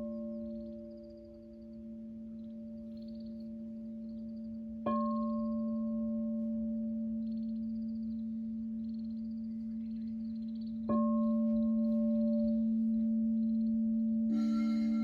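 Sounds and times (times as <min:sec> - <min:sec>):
crystal singing bowl ringing: 0:14.2 - 0:15.0.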